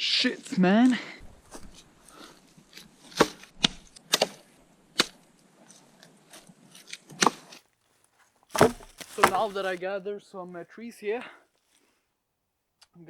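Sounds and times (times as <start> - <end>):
axe chopping wood: 8.6 - 9.8.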